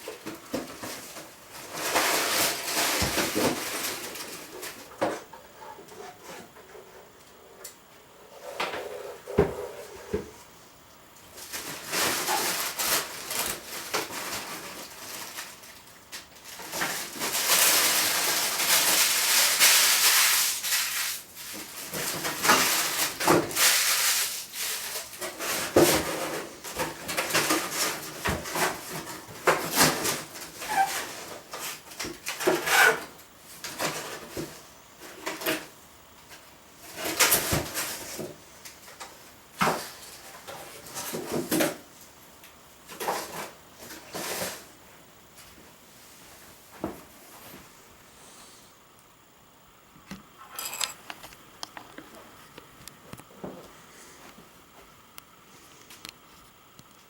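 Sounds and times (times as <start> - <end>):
packaging rustling: 11.3 - 33.0.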